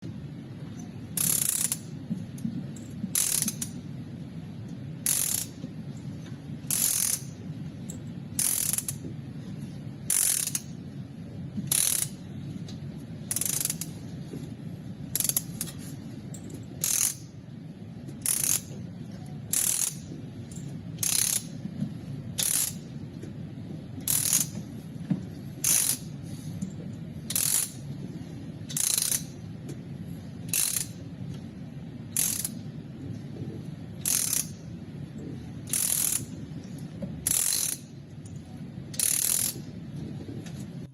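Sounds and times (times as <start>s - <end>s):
steady low hum: 0.0s - 40.9s
ratchet wrench clicking: 1.2s - 2.0s, 2.8s - 3.8s, 5.0s - 5.7s, 6.7s - 9.1s, 10.1s - 10.7s, 11.7s - 12.2s, 13.3s - 14.0s, 15.1s - 17.3s, 18.2s - 18.8s, 19.5s - 21.6s, 22.4s - 22.9s, 24.1s - 24.6s, 25.6s - 26.1s, 27.3s - 27.8s, 28.7s - 29.4s, 30.5s - 31.0s, 32.2s - 32.6s, 34.0s - 34.6s, 35.7s - 36.4s, 37.2s - 37.9s, 38.9s - 39.7s.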